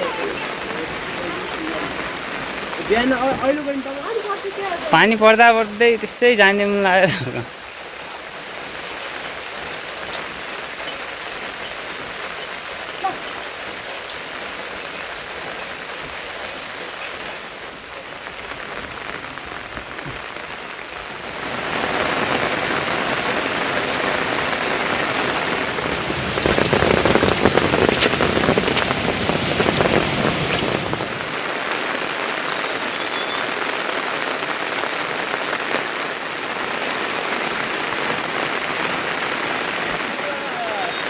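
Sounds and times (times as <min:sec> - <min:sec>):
raindrop ticks: 0:00.0 - 0:21.2, 0:25.3 - 0:35.9
rainfall hissing: 0:00.0 - 0:41.0.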